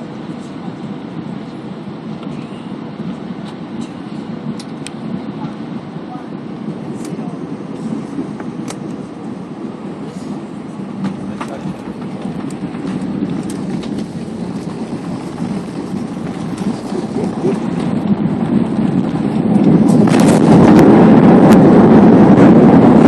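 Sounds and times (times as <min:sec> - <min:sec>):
airplane cabin engine rumble: 0:00.0 - 0:23.0
faint clicks and rattles: 0:11.0 - 0:18.0.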